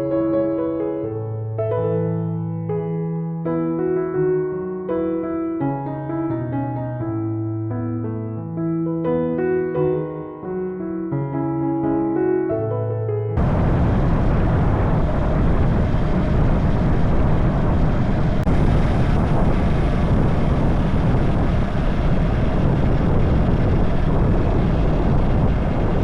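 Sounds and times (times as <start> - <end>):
wind rushing over microphone: 13.4 - 26.0.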